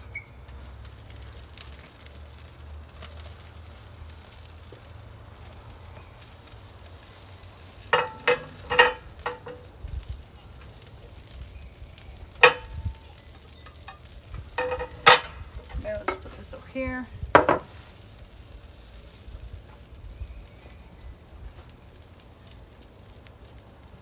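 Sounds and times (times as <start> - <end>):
chicken sizzling on a grill: 0.0 - 24.0
metal cookware clanking: 7.8 - 9.8, 12.4 - 16.6.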